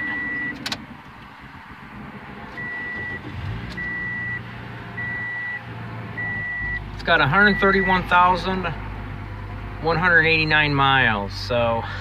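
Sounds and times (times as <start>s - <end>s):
dashboard warning chime beeping: 0.0s - 0.7s, 2.5s - 5.6s, 6.2s - 8.4s
car engine starting and idling: 0.0s - 12.0s.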